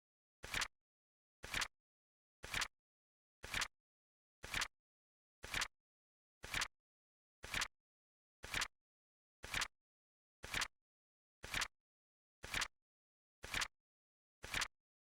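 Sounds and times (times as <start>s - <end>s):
flip clock clicking and flapping: 11.5s - 11.7s, 13.5s - 13.7s, 14.5s - 14.7s.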